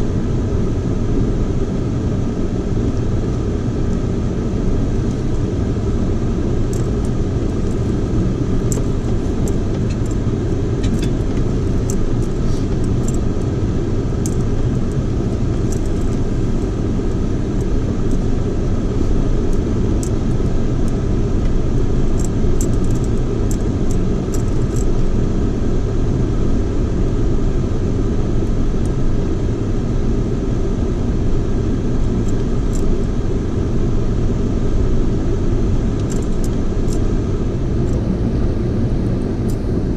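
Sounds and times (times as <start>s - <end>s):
vehicle engine and tyres rumbling: 0.0s - 39.9s
rocks ticking and rattling: 6.6s - 18.5s, 19.4s - 25.1s.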